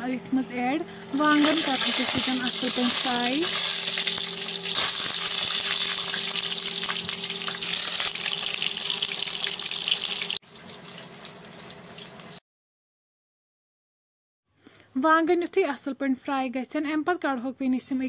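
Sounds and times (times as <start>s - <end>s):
vegetables sizzling in hot oil: 1.1s - 12.4s.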